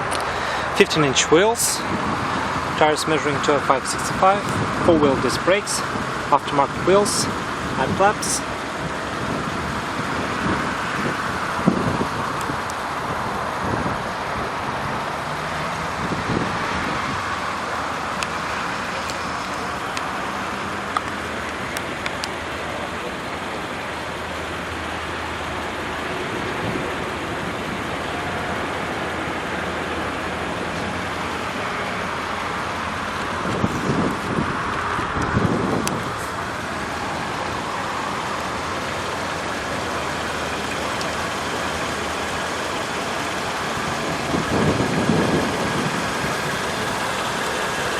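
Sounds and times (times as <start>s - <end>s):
car engine idling: 0.0s - 47.9s
low rumbles: 0.0s - 47.9s
outdoor noise: 0.0s - 47.9s.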